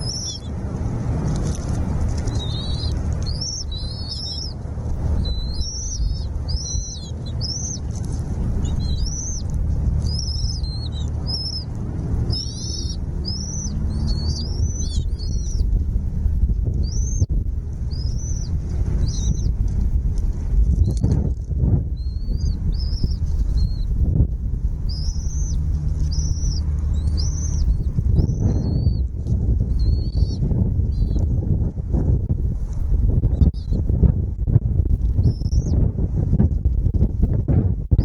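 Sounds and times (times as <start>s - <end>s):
small birds chirping: 0.0s - 0.6s, 1.2s - 15.9s, 16.5s - 19.8s, 20.7s - 24.0s, 24.7s - 31.3s, 33.2s - 33.9s, 35.1s - 35.8s
steady low rumble: 0.0s - 38.0s.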